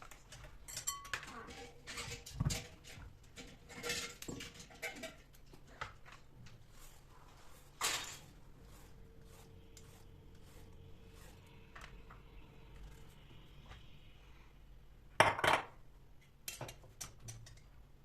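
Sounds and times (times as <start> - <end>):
utensils and dishes clicking: 0.3 - 5.4
faint steady hum: 6.4 - 18.0.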